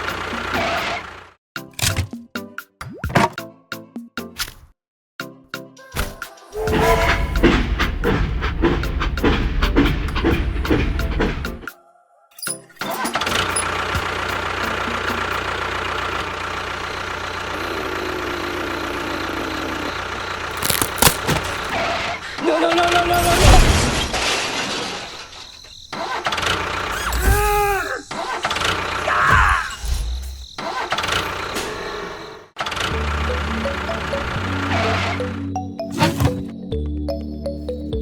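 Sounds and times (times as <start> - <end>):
small engine running: 13.3 - 22.3, 32.6 - 35.4.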